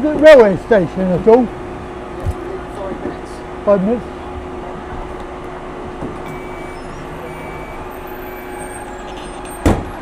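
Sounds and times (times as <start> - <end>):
bus engine idling: 0.0 - 10.0
short high-pitched beeps: 6.3 - 9.0.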